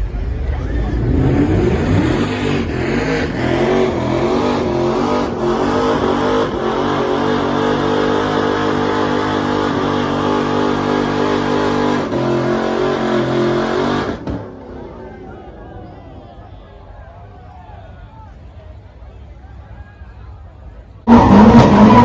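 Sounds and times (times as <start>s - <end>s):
car engine at high revs: 0.0s - 14.7s, 21.1s - 22.0s.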